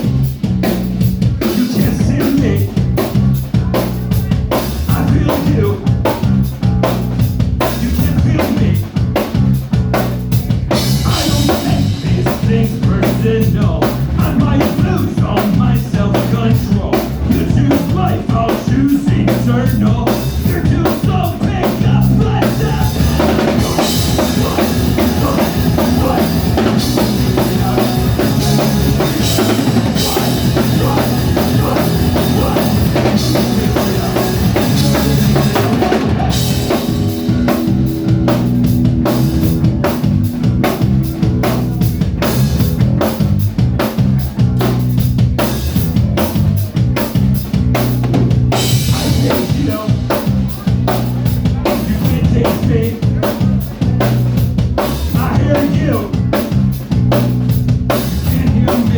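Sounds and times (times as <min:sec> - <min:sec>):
drum hits: 0:00.0 - 0:58.9
live rock band playing: 0:00.0 - 0:58.9.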